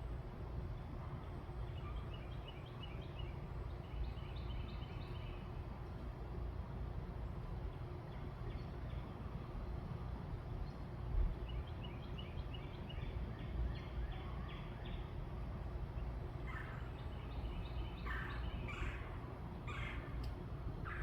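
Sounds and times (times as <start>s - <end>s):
birds calling: 15.9s - 21.0s
harsh bird calls: 16.4s - 20.2s.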